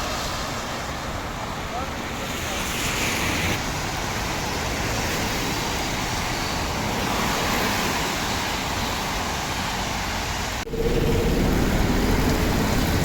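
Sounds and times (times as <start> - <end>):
traffic on wet street: 0.0 - 13.0
heavy downpour: 3.3 - 13.0.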